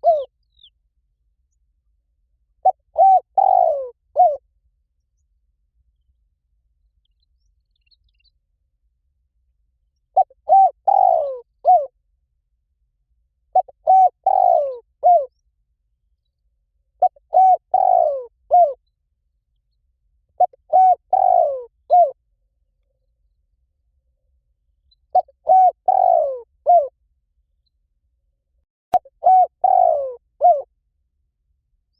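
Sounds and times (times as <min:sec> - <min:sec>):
dove cooing: 0:00.0 - 0:00.3, 0:02.6 - 0:04.4, 0:10.2 - 0:11.9, 0:13.5 - 0:15.3, 0:17.0 - 0:18.8, 0:20.4 - 0:22.2, 0:25.1 - 0:27.0, 0:29.0 - 0:30.7.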